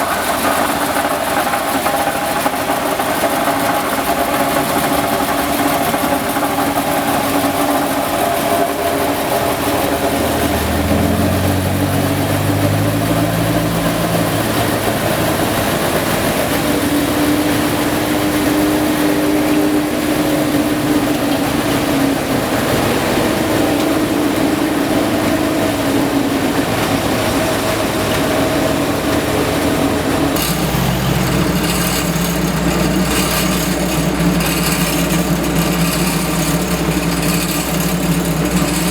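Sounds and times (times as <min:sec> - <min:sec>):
fast rattle: 0:00.0 - 0:16.8, 0:30.3 - 0:38.9
diesel paving machinery running: 0:00.0 - 0:38.9
low hum: 0:30.4 - 0:38.9.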